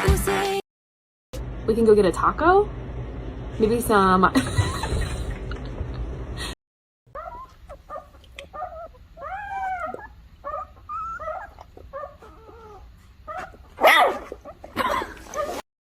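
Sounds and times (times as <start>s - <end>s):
dog whining: 7.1s - 15.6s
dog barking harshly: 13.4s - 14.4s.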